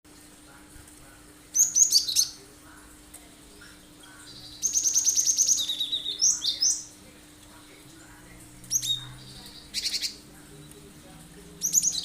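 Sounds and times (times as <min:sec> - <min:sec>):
bird singing sharp phrases: 0:01.5 - 0:02.5, 0:03.6 - 0:07.0, 0:08.6 - 0:10.9, 0:11.5 - 0:12.0.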